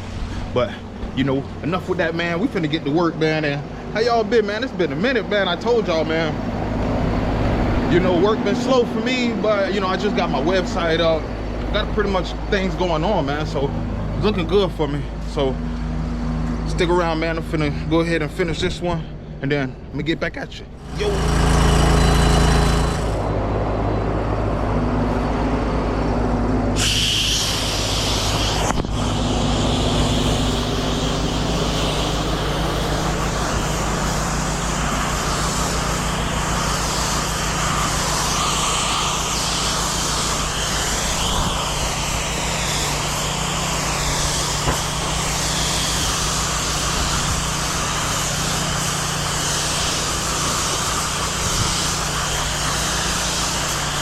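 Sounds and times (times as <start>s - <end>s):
pressure washer engine running: 0.0s - 18.8s, 20.7s - 54.0s
water spray hissing: 26.8s - 54.0s.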